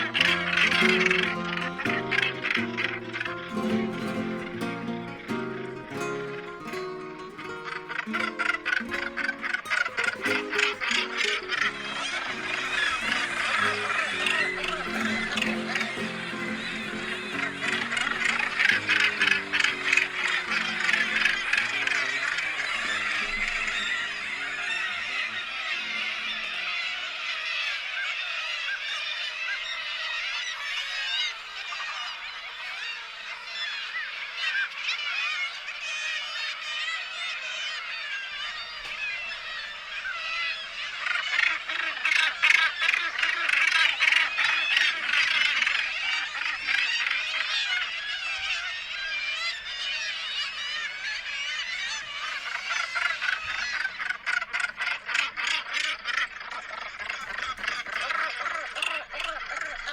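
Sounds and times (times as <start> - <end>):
flock of birds calling: 0.0 - 59.9.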